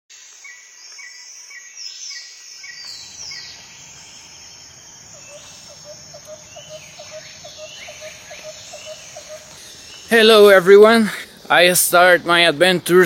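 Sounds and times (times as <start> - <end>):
high insect buzz: 0.2 - 10.2
birds calling: 0.9 - 13.0.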